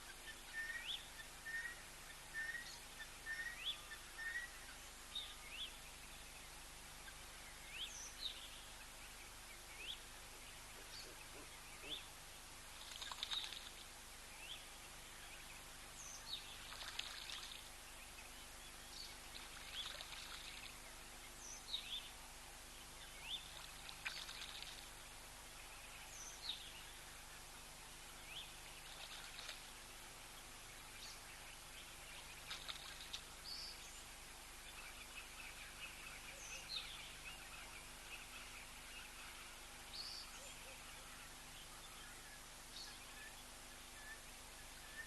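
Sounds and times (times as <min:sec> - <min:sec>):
faint water splashing: 0:09.7 - 0:42.4.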